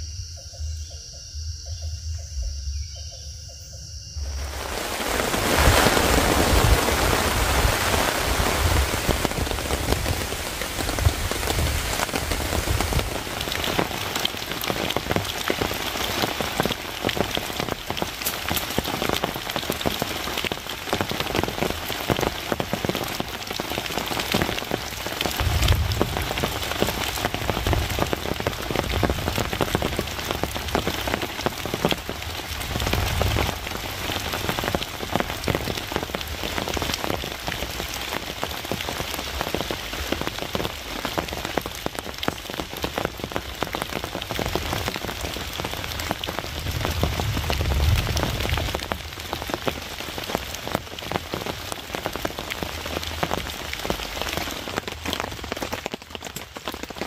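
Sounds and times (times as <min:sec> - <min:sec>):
rain on forest and tarp: 0:04.2 - 0:57.0
low rumbles: 0:25.2 - 0:30.9, 0:45.8 - 0:49.6.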